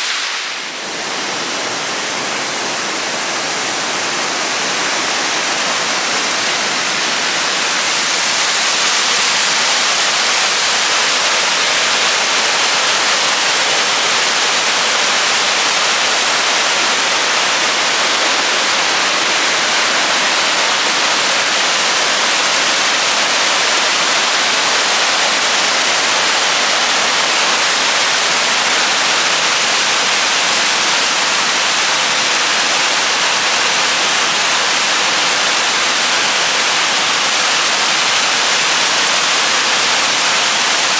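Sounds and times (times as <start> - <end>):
loud rushing hiss: 0.0 - 22.5.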